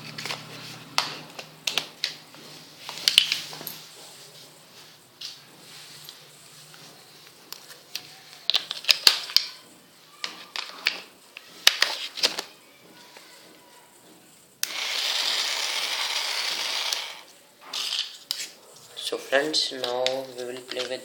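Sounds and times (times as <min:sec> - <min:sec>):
steady hissing noise: 0:00.0 - 0:08.4.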